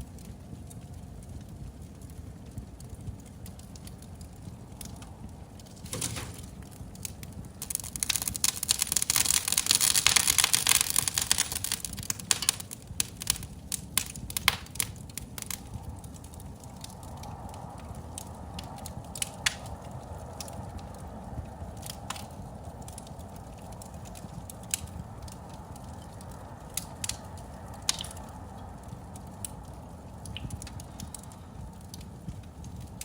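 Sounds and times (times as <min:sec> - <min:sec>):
fireplace fire crackling: 0:00.0 - 0:33.0
low steady rumble: 0:00.0 - 0:33.0
sharp pops: 0:07.6 - 0:15.6.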